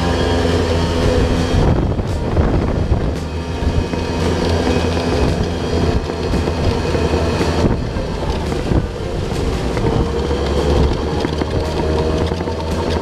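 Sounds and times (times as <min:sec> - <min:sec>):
moving vehicle rumble: 0:00.0 - 0:13.0.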